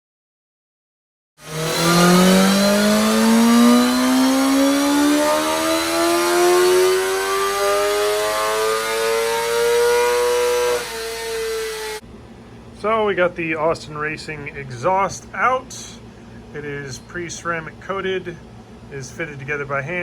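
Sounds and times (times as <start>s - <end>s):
motorcycle engine revving: 1.4s - 12.0s.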